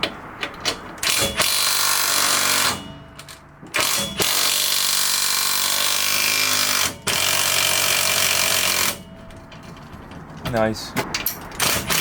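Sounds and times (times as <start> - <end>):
impact wrench running: 1.0 - 9.1, 11.6 - 12.0.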